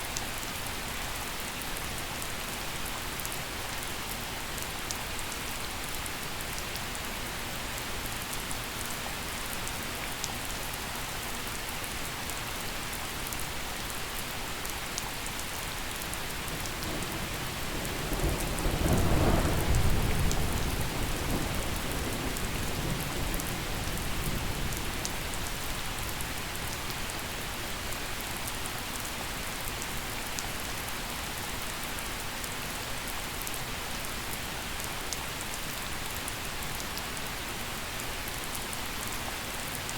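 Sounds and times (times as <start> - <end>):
gentle rain falling: 0.0 - 39.9
thunder rumbling: 16.0 - 26.1.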